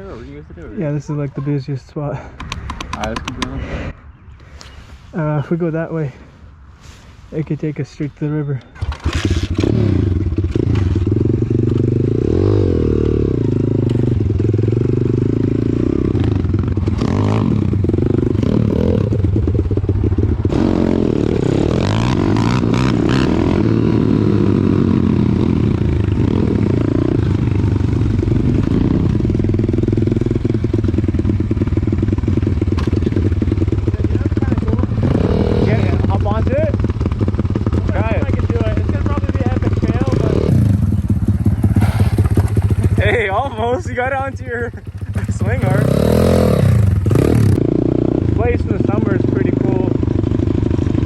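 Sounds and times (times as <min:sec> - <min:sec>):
motorbike engine revving: 0:08.7 - 0:51.0
bike knocks and rattles: 0:32.3 - 0:33.8.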